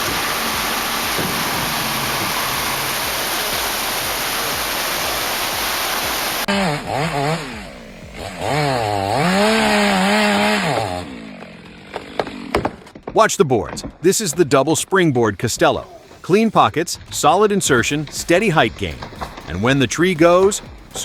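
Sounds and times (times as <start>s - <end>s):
rushing water: 0.0s - 6.5s
chainsaw revving: 0.0s - 13.0s, 17.8s - 21.0s.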